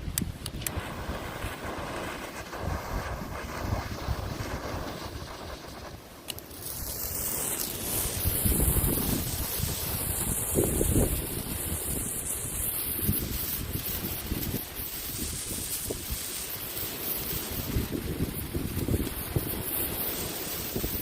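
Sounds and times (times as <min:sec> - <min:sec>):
wind buffeting microphone: 0:00.0 - 0:06.0, 0:07.8 - 0:16.4, 0:17.2 - 0:19.9, 0:20.5 - 0:21.0
firework spraying with high hiss: 0:00.0 - 0:21.0
sharp clicks: 0:00.1 - 0:00.8.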